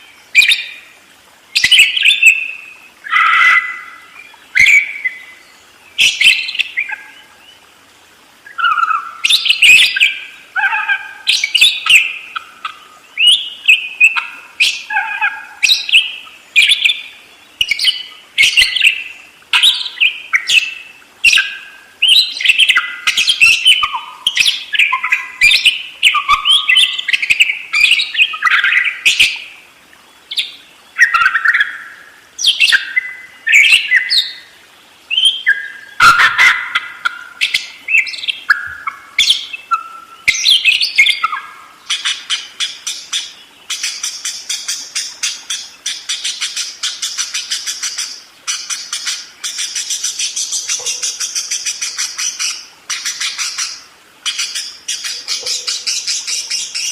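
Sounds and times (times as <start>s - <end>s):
budgerigar chattering and warbling: 36.0s - 37.6s, 45.2s - 56.9s.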